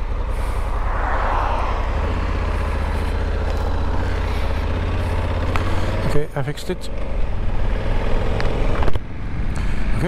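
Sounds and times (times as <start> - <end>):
motorcycle engine idling: 0.0 - 0.8, 1.9 - 10.0
brief rush of noise: 0.3 - 3.2.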